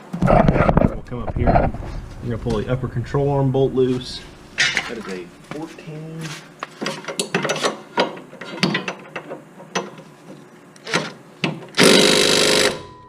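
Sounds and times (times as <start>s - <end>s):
impact wrench hammering: 11.8s - 13.0s.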